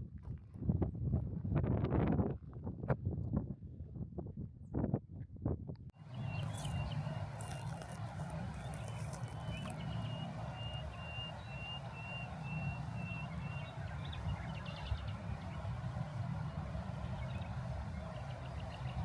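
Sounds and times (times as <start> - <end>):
low outdoor rumble: 6.0 - 19.0.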